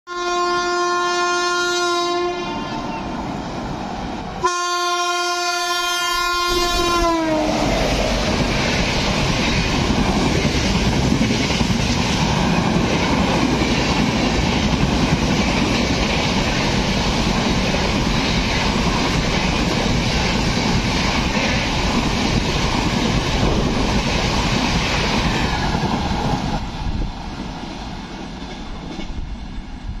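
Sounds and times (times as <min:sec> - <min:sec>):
locomotive horn blasts: 0:00.1 - 0:03.0, 0:04.4 - 0:07.7
train coaches rumbling and clattering: 0:02.7 - 0:30.0.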